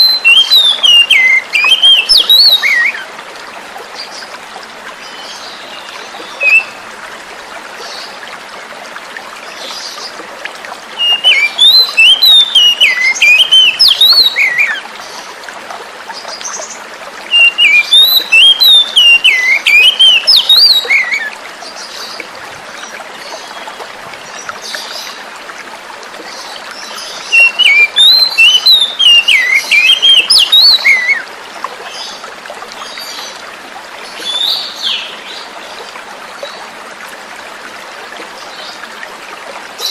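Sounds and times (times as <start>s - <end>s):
bird singing whistled phrases: 0.0s - 3.0s, 6.4s - 6.8s, 11.0s - 14.8s, 17.3s - 21.3s, 27.3s - 31.2s
flowing water: 0.0s - 39.9s.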